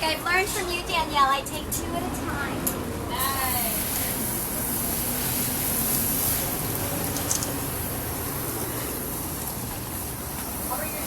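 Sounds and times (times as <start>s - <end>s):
water spraying from hose: 3.2s - 11.0s.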